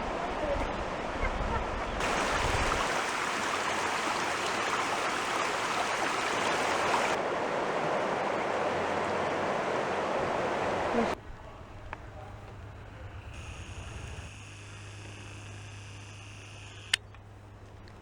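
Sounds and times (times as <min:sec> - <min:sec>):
river water flowing: 0:00.0 - 0:11.6.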